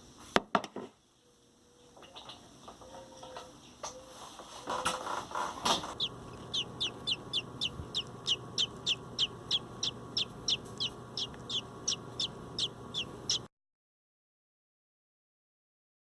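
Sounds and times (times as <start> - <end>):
young robin chirping: 5.9 - 13.5.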